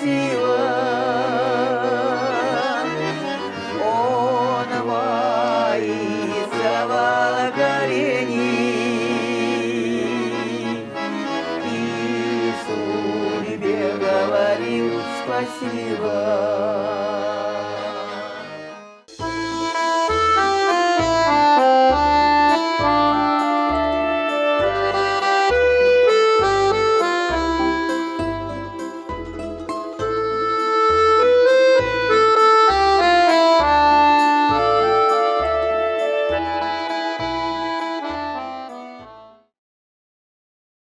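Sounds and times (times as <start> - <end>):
accordion music: 0.0 - 39.6.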